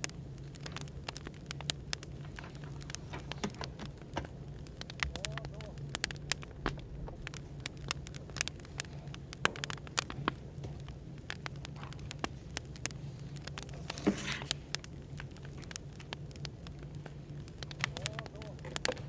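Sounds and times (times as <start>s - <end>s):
cafe background hum: 0.0s - 19.0s
fire crackling and popping: 0.0s - 19.0s.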